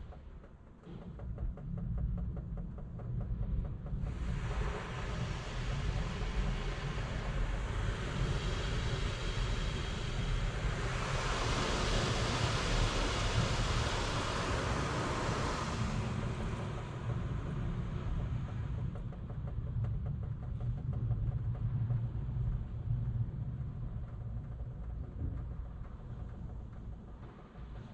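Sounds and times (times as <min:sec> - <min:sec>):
low rumble: 0:00.0 - 0:27.9
car wash rushing hiss: 0:06.6 - 0:16.7.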